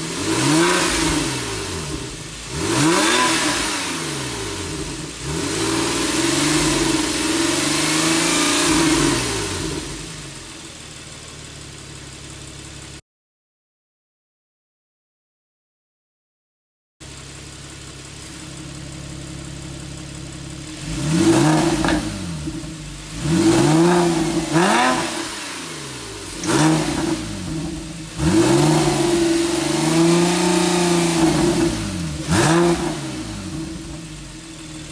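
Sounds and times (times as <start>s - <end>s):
car engine idling: 0.0s - 13.0s, 17.0s - 34.9s
engine throttle blips: 17.0s - 34.9s.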